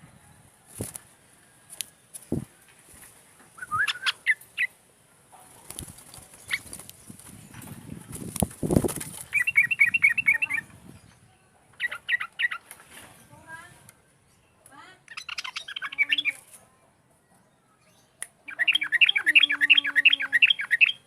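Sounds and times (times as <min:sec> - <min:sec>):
low thuds and rustles: 0:02.2 - 0:03.2, 0:05.8 - 0:09.3
bulbul singing: 0:03.6 - 0:04.8, 0:09.3 - 0:12.7, 0:14.3 - 0:16.5, 0:17.8 - 0:21.0.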